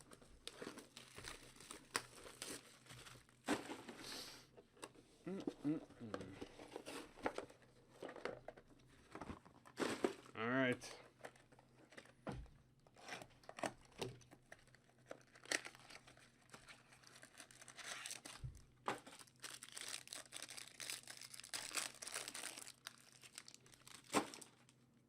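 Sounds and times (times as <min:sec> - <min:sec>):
wrapper tearing and crinkling: 0:00.4 - 0:03.3, 0:13.4 - 0:18.4, 0:19.0 - 0:24.7.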